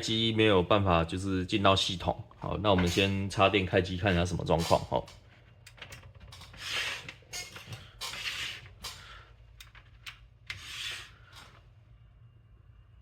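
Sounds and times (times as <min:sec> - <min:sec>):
hands rubbing and scraping computer: 0:06.4 - 0:08.8, 0:10.5 - 0:11.6
faint low hum: 0:09.0 - 0:13.0.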